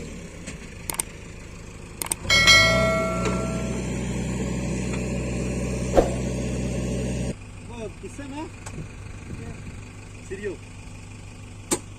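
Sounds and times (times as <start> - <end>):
tractor diesel engine running: 0.0 - 11.9
sharp metallic clang: 2.3 - 4.0.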